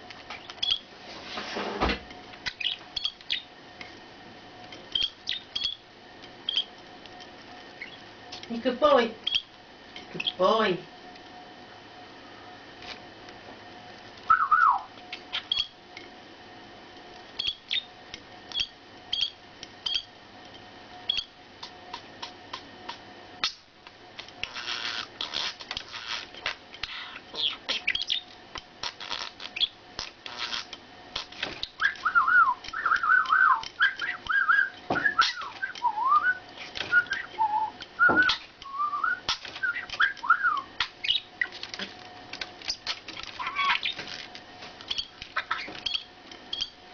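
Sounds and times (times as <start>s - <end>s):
pet bird whistling and chirping: 2.5s - 3.5s, 5.0s - 5.8s, 6.5s - 6.7s, 7.8s - 8.0s, 14.3s - 15.7s, 17.4s - 17.9s, 26.8s - 28.3s, 31.6s - 41.3s, 43.4s - 44.0s, 44.9s - 46.7s.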